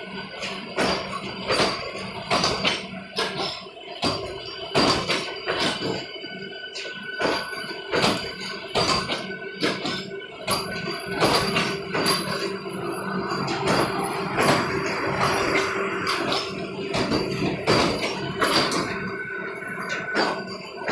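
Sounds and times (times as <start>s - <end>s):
train hum: 11.9s - 20.9s.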